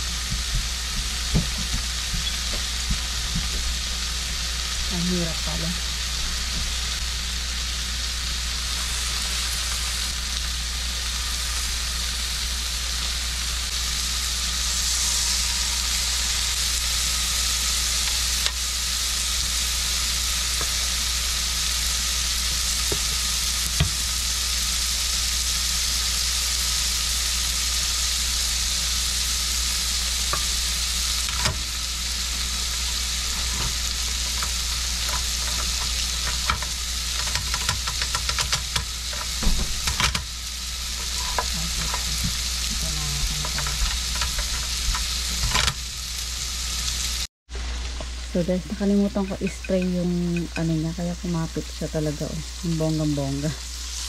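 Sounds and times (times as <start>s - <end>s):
low hum: 0.0s - 24.3s
batter sizzling in a pan: 0.0s - 54.0s.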